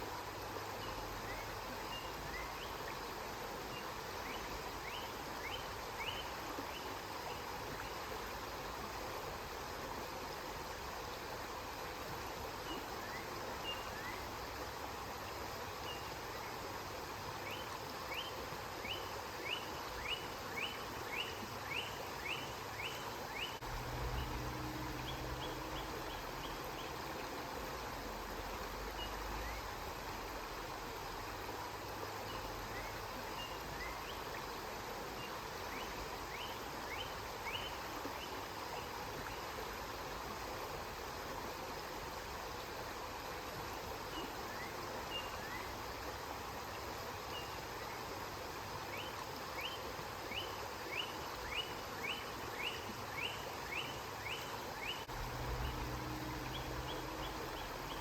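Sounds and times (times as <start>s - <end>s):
river water flowing: 0.0s - 58.0s
low hum: 23.6s - 26.7s, 55.1s - 58.0s.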